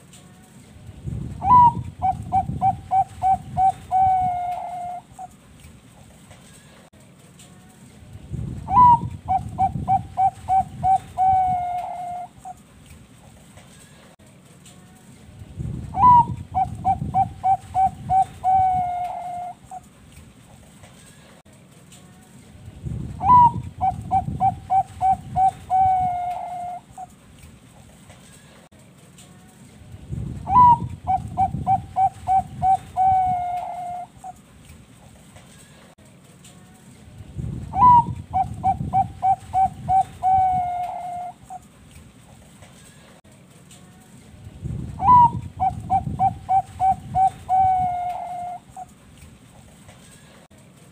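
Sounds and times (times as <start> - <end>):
dove singing: 1.3 - 5.4, 8.6 - 12.7, 15.9 - 19.9, 23.2 - 27.2, 30.4 - 34.4, 37.7 - 41.7, 45.0 - 49.0.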